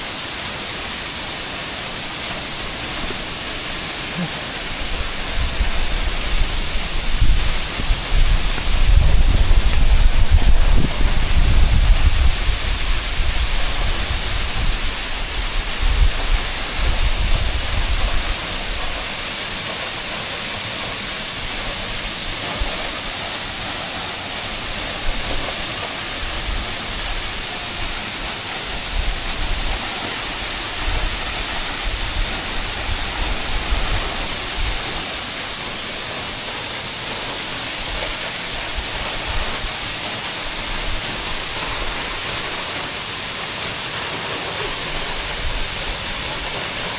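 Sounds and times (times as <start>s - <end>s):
waterfall rushing: 0.0s - 46.9s
low gusty rumble: 4.7s - 18.9s.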